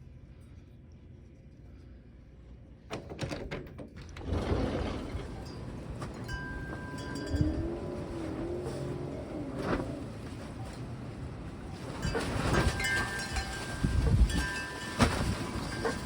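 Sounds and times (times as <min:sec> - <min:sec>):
wind blowing across microphone: 0:06.3 - 0:10.1, 0:11.6 - 0:16.0.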